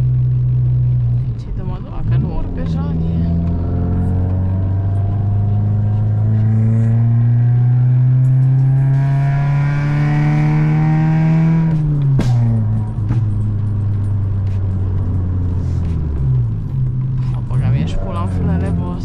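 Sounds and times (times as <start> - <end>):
car engine revving: 0.0 - 19.0
exhaust bang: 5.5 - 14.1
exhaust pops and crackles: 11.6 - 19.0.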